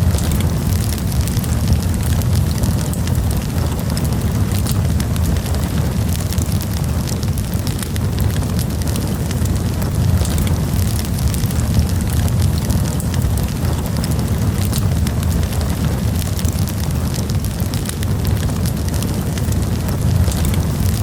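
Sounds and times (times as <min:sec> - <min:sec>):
campfire flames rumbling: 0:00.0 - 0:21.0
wood crackling and popping: 0:00.0 - 0:21.0.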